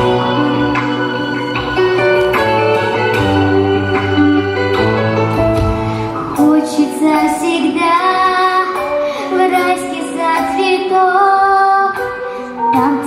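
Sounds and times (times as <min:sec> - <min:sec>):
instrumental accompaniment: 0:00.0 - 0:13.0
young woman singing: 0:06.3 - 0:13.0.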